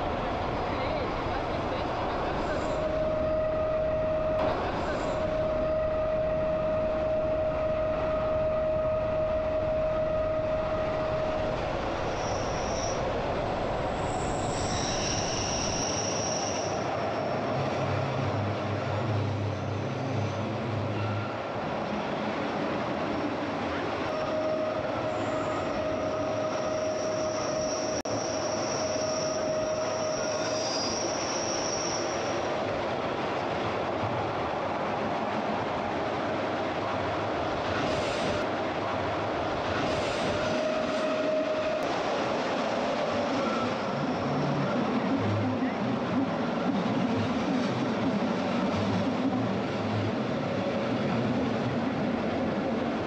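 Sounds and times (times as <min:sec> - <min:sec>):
train wheel squeal: 0:00.8 - 0:21.7, 0:24.0 - 0:32.7, 0:37.7 - 0:38.5, 0:39.7 - 0:45.8.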